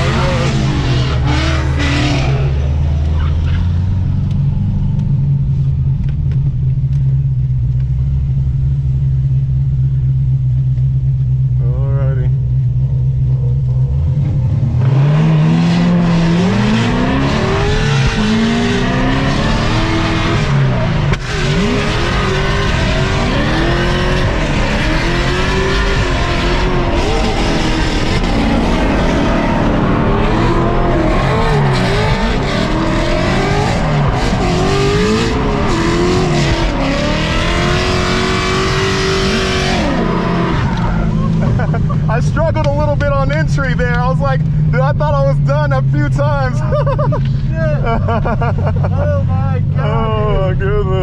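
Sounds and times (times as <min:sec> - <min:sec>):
car engine revving: 0:00.0 - 0:51.0.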